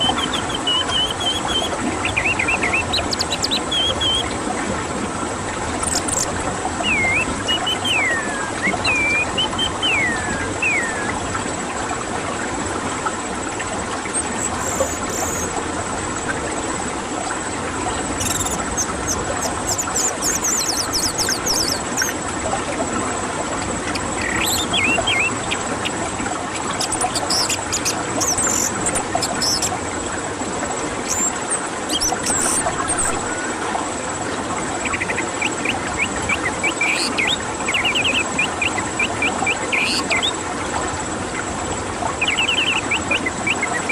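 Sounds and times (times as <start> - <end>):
thrush singing whistles and trills: 0.0 - 4.4, 5.8 - 11.2, 14.0 - 15.6, 18.2 - 22.2, 23.8 - 29.8, 31.0 - 33.5, 34.8 - 40.4, 42.2 - 43.9.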